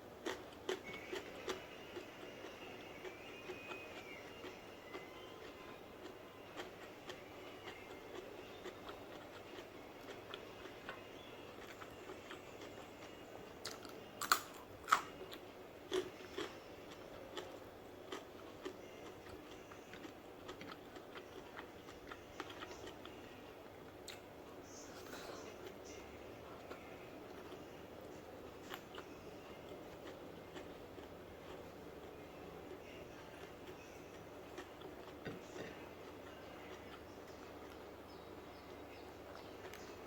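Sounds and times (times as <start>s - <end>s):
close-up chewing and biting: 0.2s - 24.3s, 25.6s - 40.0s.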